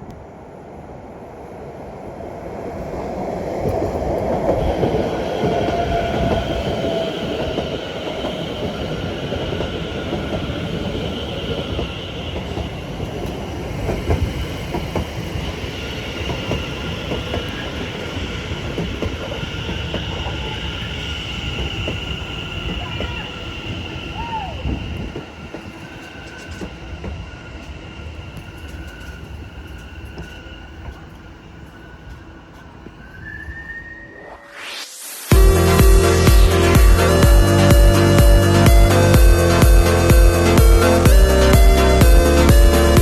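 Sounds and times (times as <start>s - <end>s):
train rumbling: 0.0s - 43.0s
high-pitched whine: 33.0s - 43.0s.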